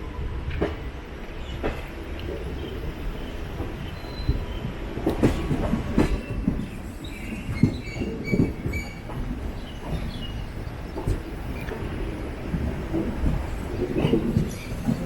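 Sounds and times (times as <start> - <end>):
train rumble: 0.0 - 15.0
wheel squeals: 7.0 - 10.4.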